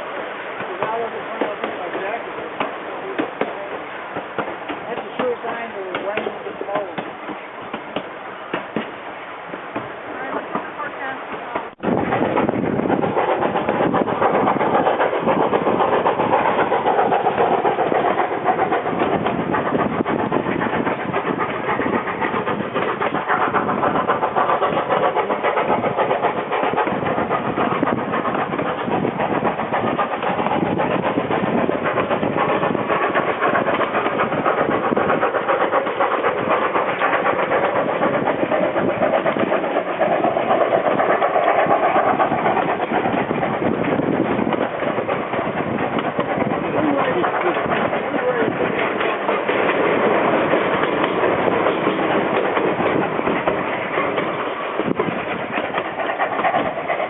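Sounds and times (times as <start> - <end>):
steam train rumbling: 0.0 - 57.0.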